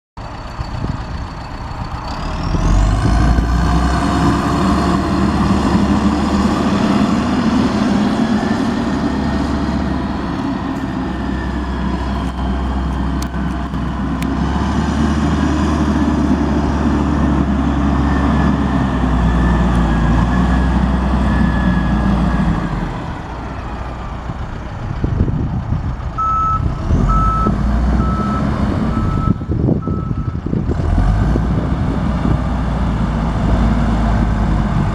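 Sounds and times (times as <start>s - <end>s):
diesel backhoe engine running: 0.2s - 34.9s
beeping backup alarm: 26.2s - 30.4s.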